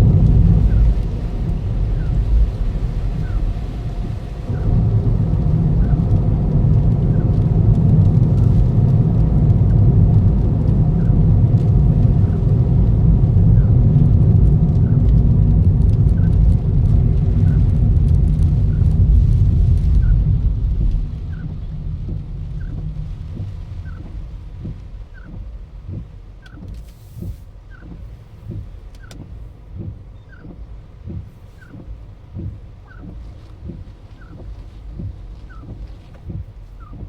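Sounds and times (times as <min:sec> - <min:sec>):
car engine and road noise: 0:00.0 - 0:37.0
faint regular ticking: 0:00.0 - 0:37.0.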